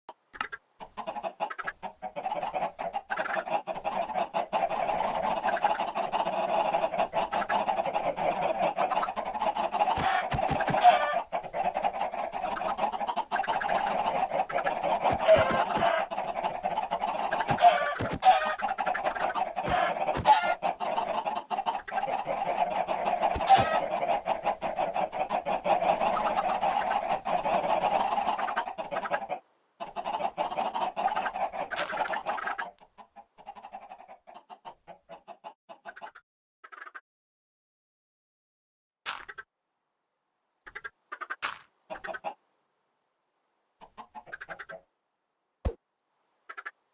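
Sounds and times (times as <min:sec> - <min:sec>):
chickens clucking: 0:00.1 - 0:37.0, 0:40.7 - 0:42.4, 0:43.8 - 0:44.9, 0:46.5 - 0:46.8
chicken squawks: 0:00.3 - 0:37.0, 0:40.7 - 0:42.4, 0:43.8 - 0:44.9, 0:46.5 - 0:46.8.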